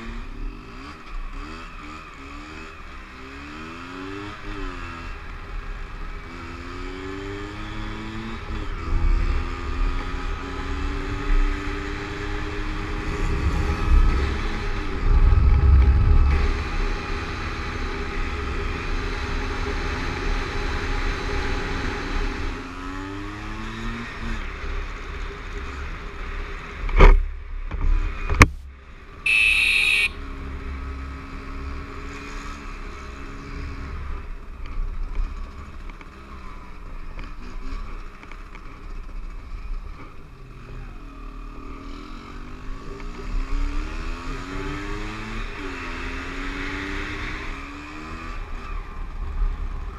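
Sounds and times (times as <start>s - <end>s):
wind rumble: 12.8s - 18.2s
motorcycle engine running: 28.4s - 31.5s
high-pitched tone: 29.3s - 30.2s.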